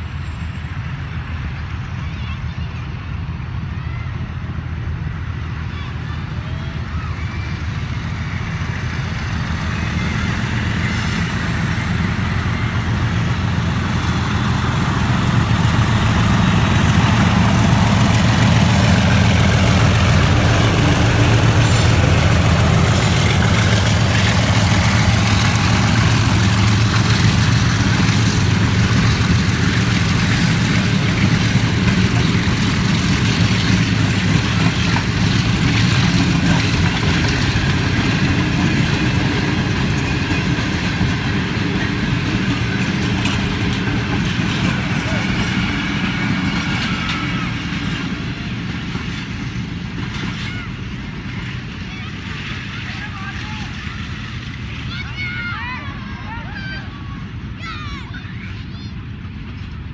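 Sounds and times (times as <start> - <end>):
diesel locomotive engine drone: 0.0 - 59.9
train wheels clickety-clack: 7.4 - 54.8.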